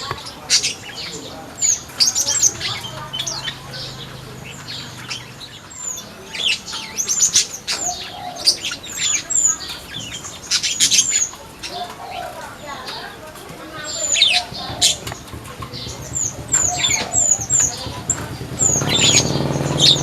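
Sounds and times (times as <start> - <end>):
birds chirping: 0.0 - 20.0
wing flapping: 6.7 - 20.0.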